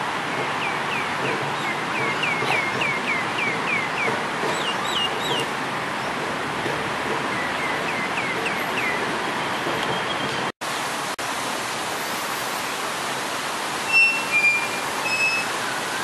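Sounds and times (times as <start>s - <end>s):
bird singing whistled notes: 13.9s - 15.5s.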